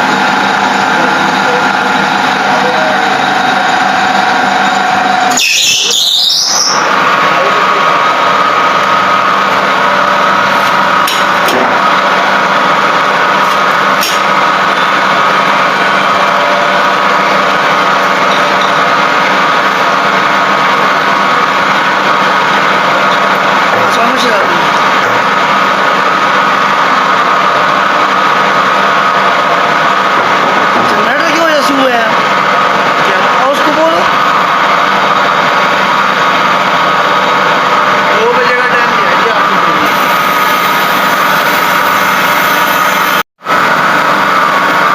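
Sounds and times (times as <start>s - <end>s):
small motor running steadily: 0.0s - 5.3s, 31.1s - 43.2s
machine humming and whining: 0.0s - 44.9s.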